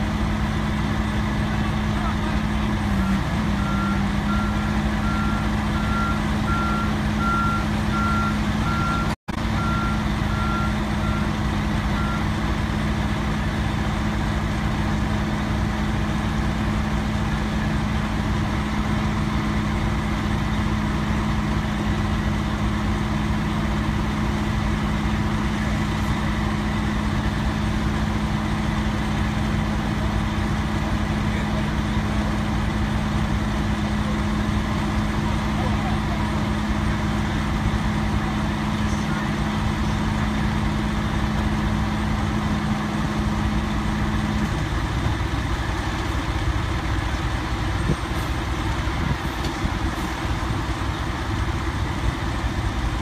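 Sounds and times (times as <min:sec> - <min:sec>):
heavy diesel truck engine: 0:00.0 - 0:53.0
truck backup alarm beeping: 0:02.0 - 0:12.7.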